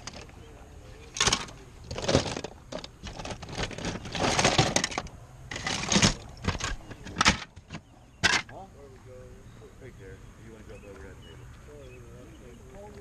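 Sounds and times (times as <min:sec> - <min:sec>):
plastic toys and bags rustling: 0:01.1 - 0:08.5.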